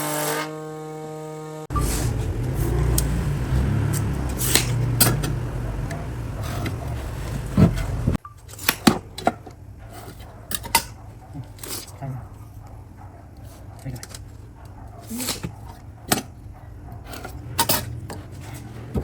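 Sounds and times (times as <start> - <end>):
low steady rumble: 1.7 - 8.2.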